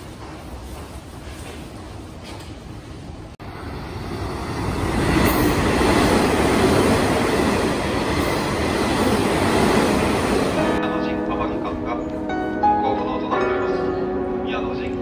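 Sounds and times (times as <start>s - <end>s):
electric train rumbling past: 3.0s - 15.0s.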